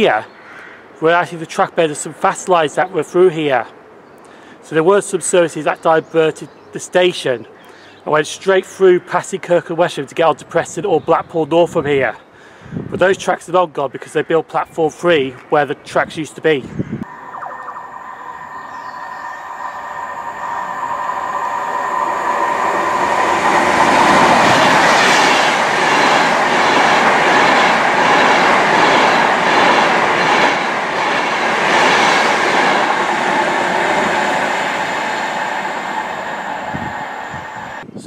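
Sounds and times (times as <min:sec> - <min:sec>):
electric train passing: 0:17.0 - 0:37.8.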